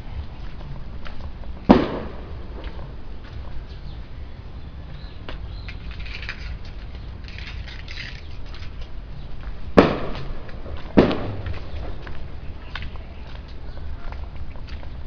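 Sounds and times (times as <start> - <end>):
low steady rumble: 0.0 - 15.0
sharp ringing bangs: 1.7 - 2.7, 9.8 - 11.6.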